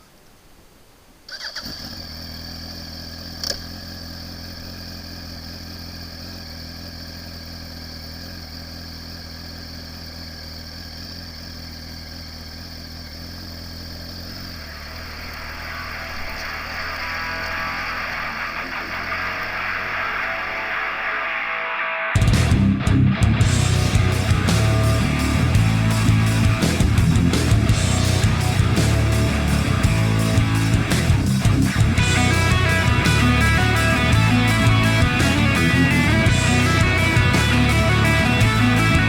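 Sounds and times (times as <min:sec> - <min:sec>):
motorcycle engine idling: 0:01.4 - 0:21.0, 0:23.4 - 0:39.0
sharp click: 0:03.4 - 0:03.7
loud noisy sound: 0:13.5 - 0:39.0.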